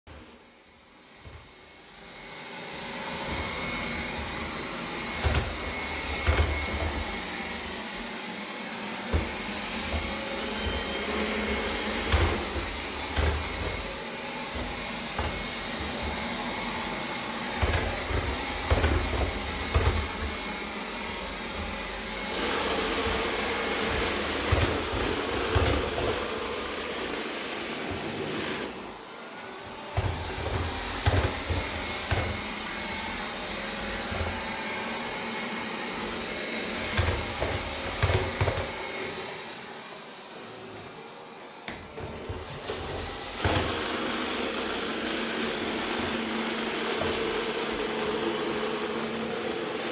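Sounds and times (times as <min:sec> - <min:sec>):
robot vacuum motor whirring: 0:01.1 - 0:49.9.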